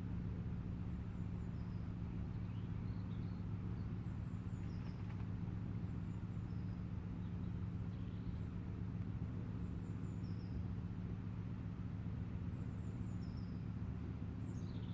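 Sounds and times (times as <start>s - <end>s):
small birds chirping: 0.9s - 8.5s, 14.4s - 14.9s.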